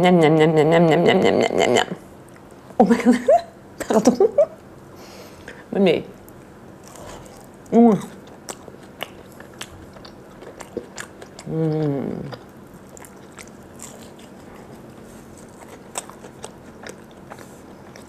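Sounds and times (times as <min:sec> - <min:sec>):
chewing with mouth clicks: 0:06.2 - 0:18.0
person humming mmh of pleasure: 0:11.4 - 0:12.4.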